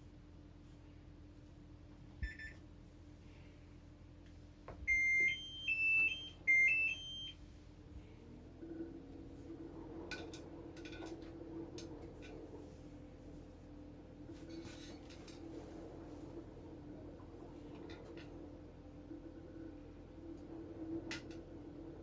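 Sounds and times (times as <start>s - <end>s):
washer-dryer low hum: 0.0s - 22.0s
jingle of high beeps: 4.9s - 7.4s.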